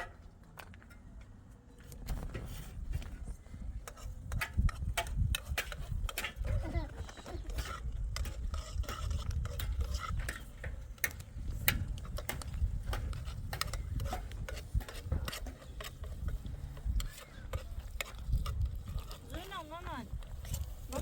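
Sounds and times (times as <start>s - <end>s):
utensils clinking against cooking pot: 3.8s - 19.2s.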